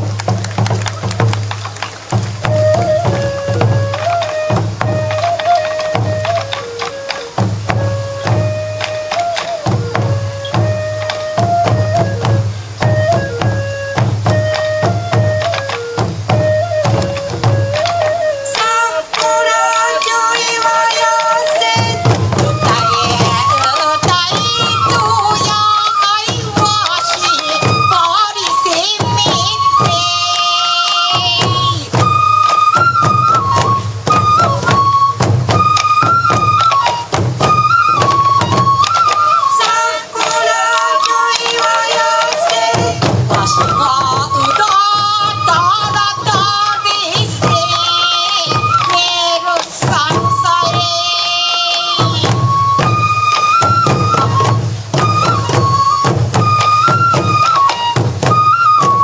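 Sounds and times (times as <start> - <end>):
bamboo flute melody: 0.0 - 59.0
taiko drums beating: 0.0 - 59.0
person singing: 18.5 - 32.0, 39.2 - 52.4.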